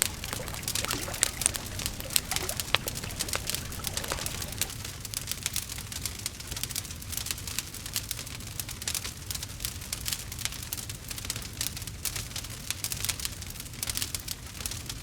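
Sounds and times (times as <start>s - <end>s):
low fire rumble: 0.0s - 4.8s
wood fire crackling: 0.0s - 4.8s.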